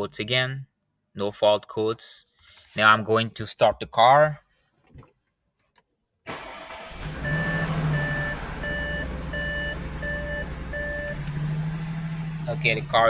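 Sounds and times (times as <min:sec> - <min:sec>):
car engine idling with misfire: 0:06.3 - 0:13.0
car warning chime beeps: 0:07.0 - 0:11.8.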